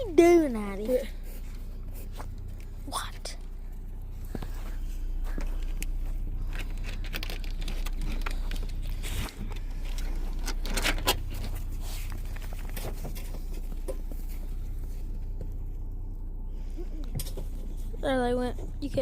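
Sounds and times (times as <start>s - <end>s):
steady low rumble: 0.0s - 19.0s
rustling: 3.4s - 16.2s.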